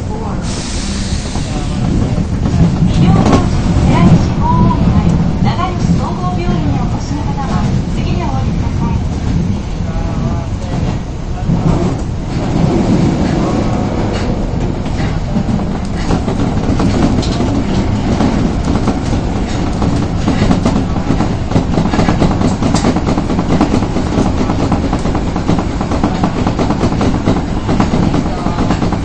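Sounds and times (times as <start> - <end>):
subway train rumble: 0.0 - 29.0
wheels clicking over rail joints: 11.5 - 29.0.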